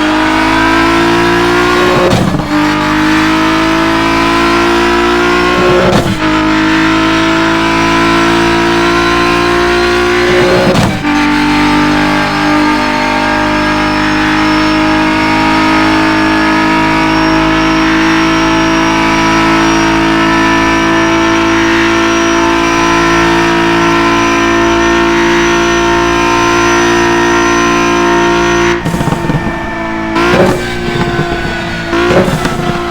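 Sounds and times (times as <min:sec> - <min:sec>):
race car engine droning: 0:00.0 - 0:32.9.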